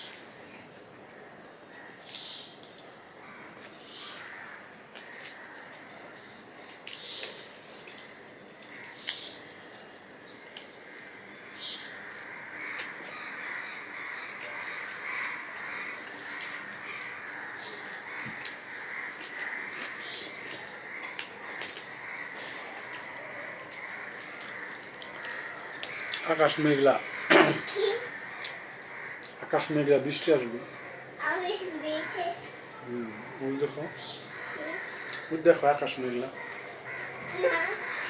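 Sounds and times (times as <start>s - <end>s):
crows cawing: 3.2s - 5.9s, 8.7s - 9.4s, 10.8s - 38.0s
chewing and lip-smacking: 6.8s - 11.4s, 16.4s - 21.9s, 22.9s - 26.2s.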